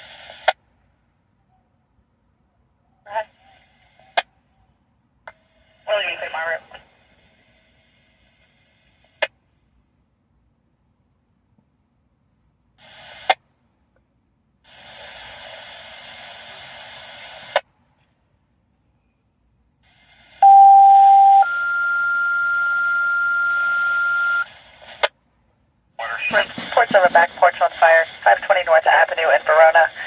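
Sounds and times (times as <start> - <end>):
radio channel hiss: 0.0 - 0.6, 3.1 - 4.3, 5.4 - 9.3, 12.8 - 13.4, 14.6 - 17.7, 19.8 - 20.4, 26.0 - 30.0
two-tone page: 26.0 - 28.5
radio squelch click: 26.0 - 30.0.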